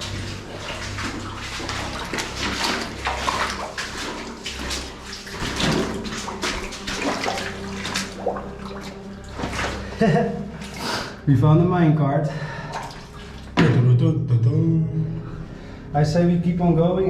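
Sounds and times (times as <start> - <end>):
boots wading through water: 0.0 - 11.3, 12.3 - 13.8.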